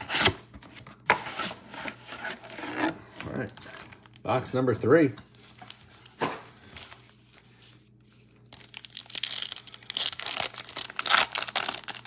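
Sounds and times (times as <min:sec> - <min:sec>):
plastic wrapping crinkling and tearing: 0:06.8 - 0:12.0.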